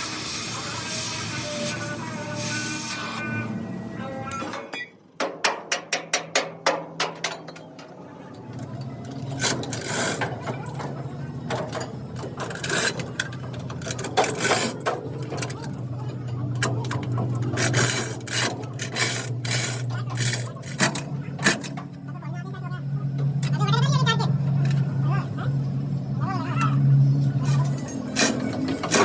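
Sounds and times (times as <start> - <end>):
hammer striking metal: 4.3 - 7.6.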